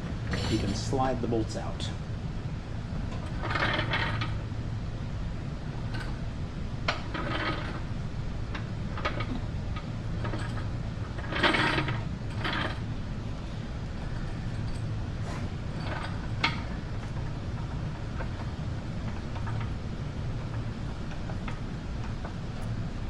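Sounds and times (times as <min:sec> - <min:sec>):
jack mechanical strokes: 0:00.0 - 0:01.7
steady low hum: 0:00.0 - 0:23.0.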